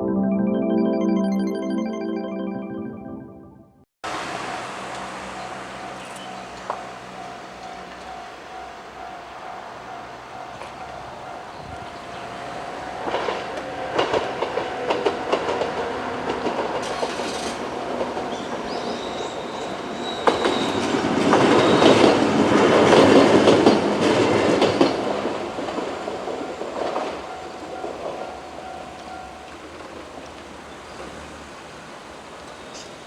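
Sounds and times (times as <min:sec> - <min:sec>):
train wheels clicking over rail joints: 0:04.2 - 0:08.6, 0:13.0 - 0:31.4.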